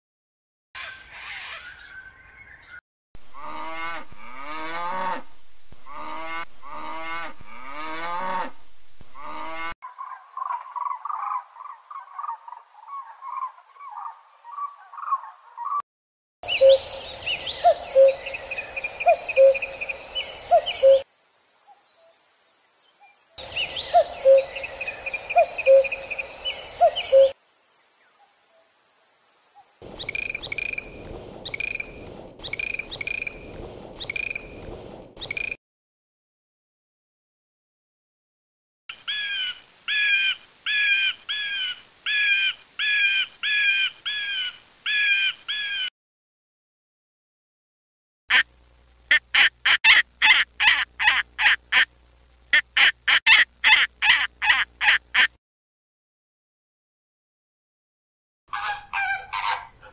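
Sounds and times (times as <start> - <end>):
steady hiss: 48.3 - 55.3
falcon alarm cackle: 49.1 - 51.9, 52.5 - 55.3, 58.5 - 59.9
dolphin squeaks and clicks: 52.8 - 55.3.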